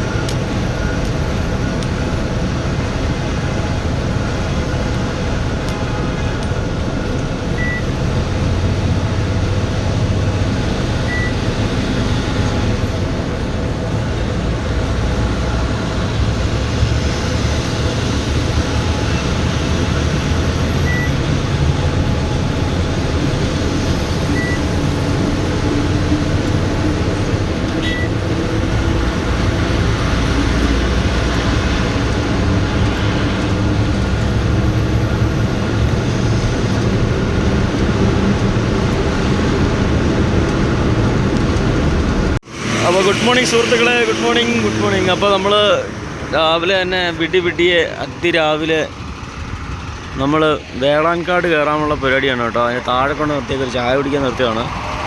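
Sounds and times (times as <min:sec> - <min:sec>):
truck diesel engine drone: 0:00.0 - 0:55.0
short high beeps: 0:07.6 - 0:07.9, 0:27.8 - 0:28.1.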